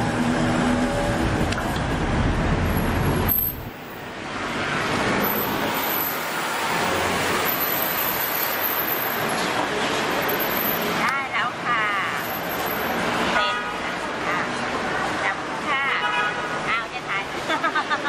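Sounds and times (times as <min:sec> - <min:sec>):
vehicle passing with low rumble: 0:00.0 - 0:08.2
steady traffic hiss: 0:00.0 - 0:15.8.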